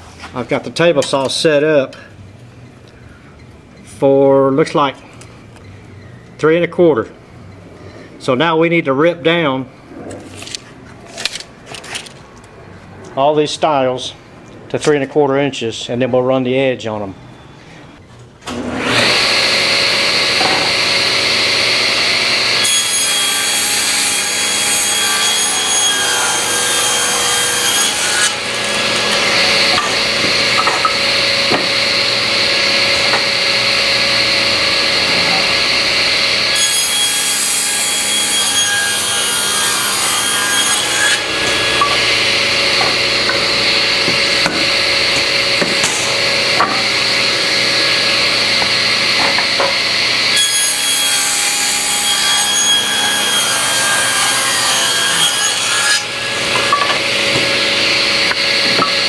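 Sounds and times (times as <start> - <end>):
table saw running whine: 18.5 - 59.0
saw blade cutting wood: 18.7 - 59.0.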